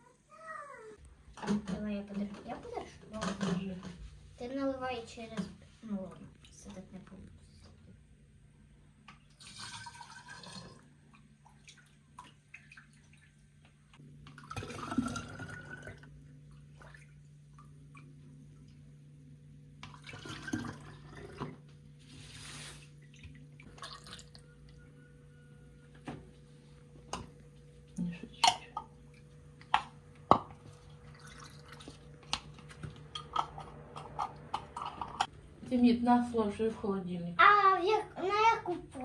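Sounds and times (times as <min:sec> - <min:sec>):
low steady hum: 0:01.0 - 0:39.0
water pouring: 0:09.3 - 0:13.4, 0:14.3 - 0:18.8, 0:19.8 - 0:24.7, 0:30.5 - 0:35.3.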